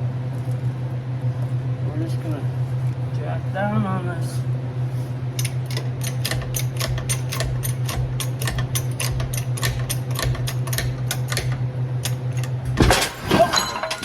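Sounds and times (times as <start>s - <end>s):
steady hum: 0.0s - 14.0s
rapid mechanical clicking: 5.3s - 12.8s
metal crash and clatter: 12.6s - 14.0s.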